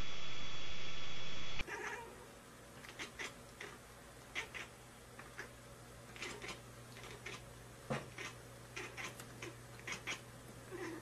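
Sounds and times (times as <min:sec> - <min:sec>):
steady low hum: 0:00.0 - 0:01.6
cat crying softly: 0:01.6 - 0:02.2, 0:08.2 - 0:11.0.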